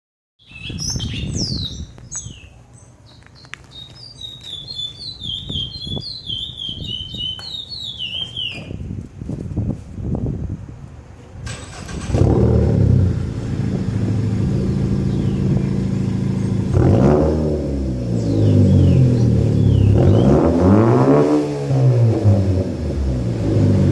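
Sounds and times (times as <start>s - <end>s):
songbird chirping: 0.4s - 9.0s, 14.5s - 17.2s, 18.0s - 20.5s
car engine idling: 11.5s - 19.7s.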